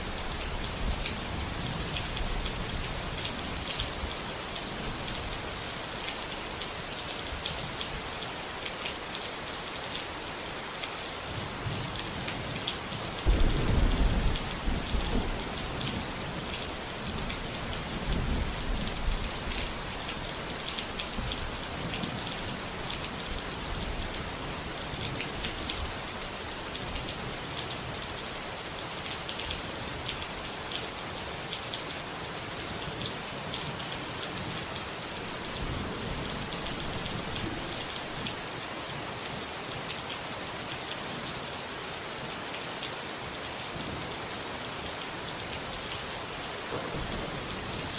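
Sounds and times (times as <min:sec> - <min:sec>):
heavy rain pattering: 0:00.0 - 0:40.2, 0:43.6 - 0:47.9
thunder rumbling: 0:13.3 - 0:15.6.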